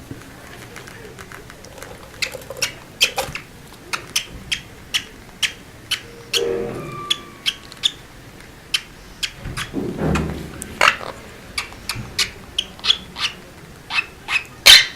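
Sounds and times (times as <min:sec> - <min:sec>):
small birds chirping: 0:02.1 - 0:08.1, 0:11.5 - 0:14.9
low bird call: 0:04.2 - 0:09.4.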